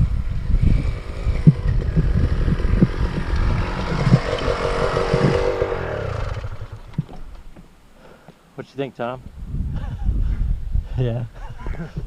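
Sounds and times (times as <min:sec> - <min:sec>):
two-stroke dirt bike engine: 0:00.0 - 0:07.2
wind on the microphone: 0:00.0 - 0:07.4, 0:09.2 - 0:12.0.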